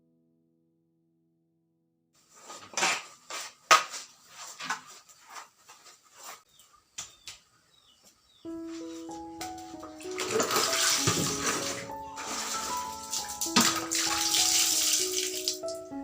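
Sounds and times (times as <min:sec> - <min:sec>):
dishes and utensils clattering: 0:10.1 - 0:13.8.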